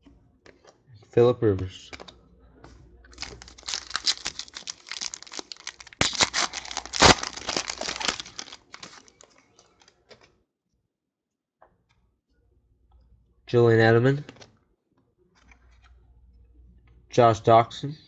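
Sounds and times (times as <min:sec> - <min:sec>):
wrapper crinkling and tearing: 0:03.2 - 0:10.0.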